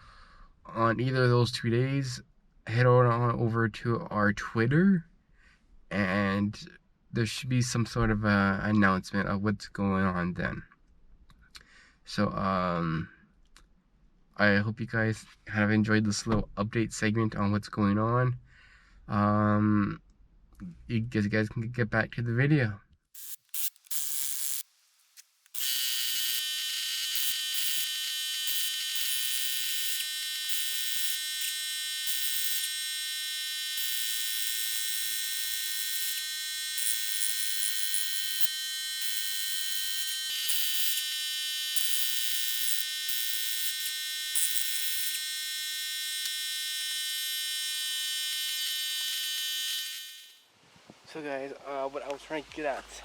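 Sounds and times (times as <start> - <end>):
high-pitched electronic whine: 25.6 - 50.4.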